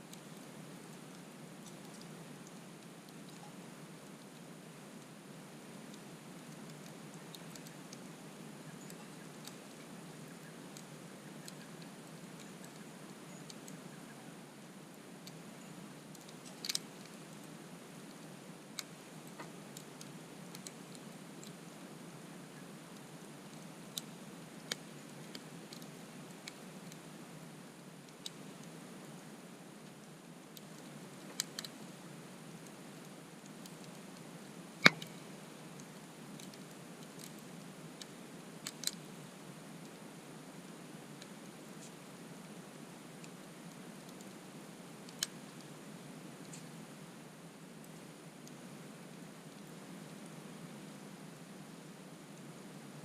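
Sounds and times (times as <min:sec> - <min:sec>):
steady low hiss: 0:00.0 - 0:53.0
campfire crackling and popping: 0:14.6 - 0:21.9, 0:34.8 - 0:39.1.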